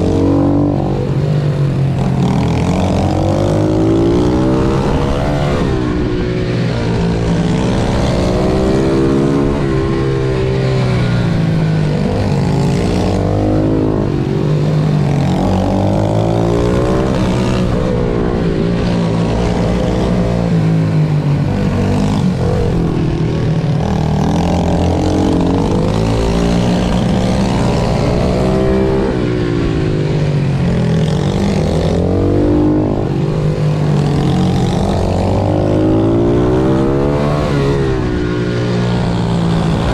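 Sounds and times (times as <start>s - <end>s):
pit bike engines revving hard: 0.0s - 39.9s.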